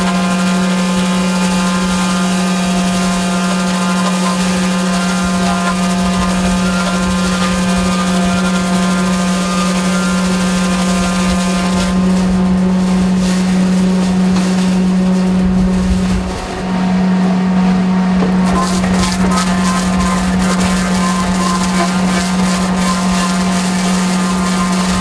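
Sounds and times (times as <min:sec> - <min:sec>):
post peeler loud steady drone: 0:00.0 - 0:25.0.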